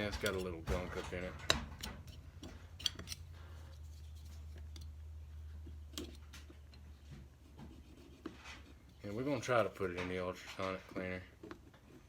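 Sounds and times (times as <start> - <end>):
low steady hum: 0.0 - 12.0
small metal parts clicking: 1.4 - 3.3.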